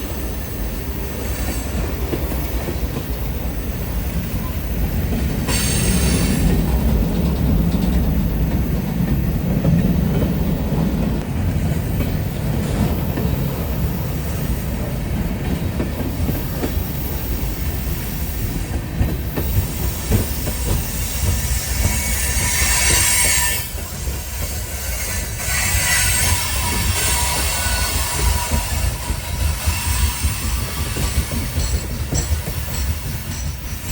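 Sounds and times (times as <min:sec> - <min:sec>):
train wheels rumbling on rails: 0:00.0 - 0:33.9
wheel flange squeal: 0:19.2 - 0:33.9.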